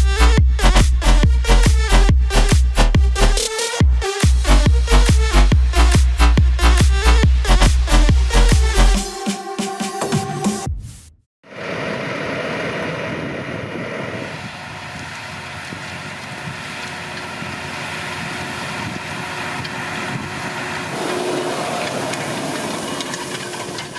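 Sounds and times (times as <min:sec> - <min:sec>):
wind on microphone: 0:11.5 - 0:16.7, 0:17.4 - 0:23.9
tractor engine running: 0:14.7 - 0:23.9.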